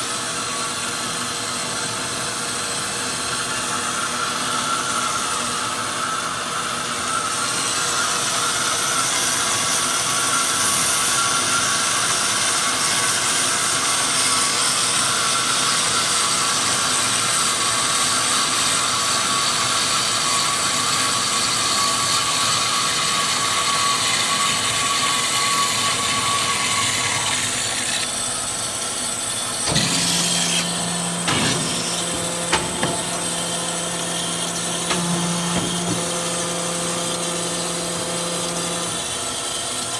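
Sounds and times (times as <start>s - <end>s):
band saw running: 0.0s - 39.9s
sharp knocks and clanks: 29.6s - 37.3s.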